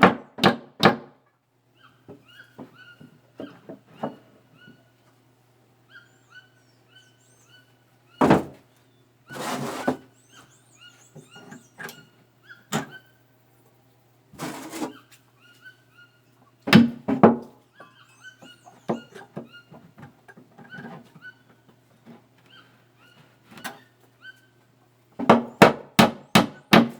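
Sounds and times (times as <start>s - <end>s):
wood scraping: 9.3s - 10.1s, 14.3s - 15.0s.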